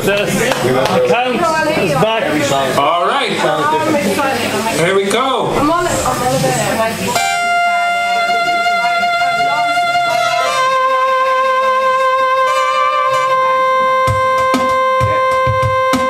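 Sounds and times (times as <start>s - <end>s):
low drum thumps: 5.4s - 7.5s, 14.0s - 16.0s
live band playing: 5.5s - 16.0s
long held instrument note: 7.1s - 16.0s.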